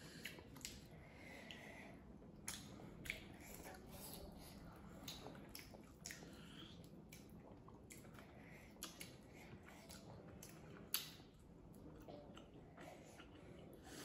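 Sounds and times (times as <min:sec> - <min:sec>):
chewing and mouth smacks: 0:00.2 - 0:00.9, 0:02.4 - 0:13.8.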